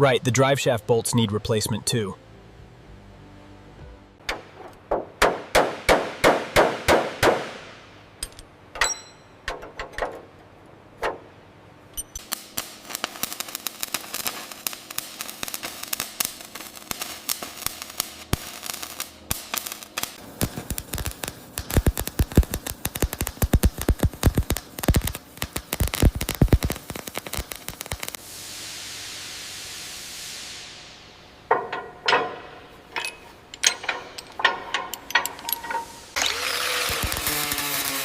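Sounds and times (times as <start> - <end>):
ringing metal clinks: 8.2 - 9.4
metal clanking on metal: 8.2 - 10.3, 31.5 - 36.1.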